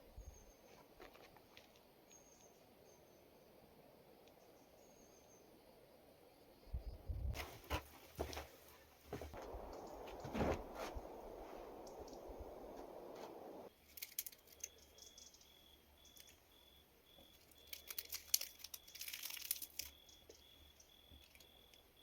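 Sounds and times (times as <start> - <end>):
insect chirping: 0.1 - 8.5, 9.1 - 22.0
steady rushing noise: 9.3 - 13.7
crinkling rustles of handling: 17.4 - 20.0.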